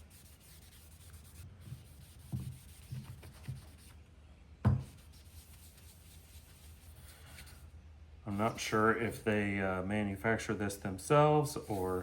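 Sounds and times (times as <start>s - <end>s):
cloth rubbing on metal plane: 0.0s - 3.9s
soft knocks: 4.6s - 4.9s.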